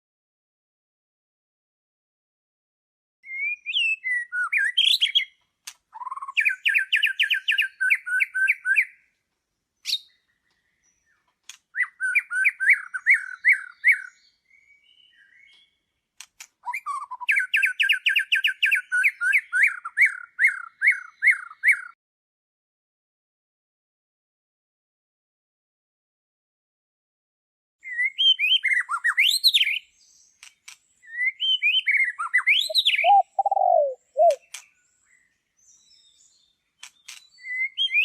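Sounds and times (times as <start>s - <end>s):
songbird singing: 3.2s - 22.0s, 27.8s - 38.0s.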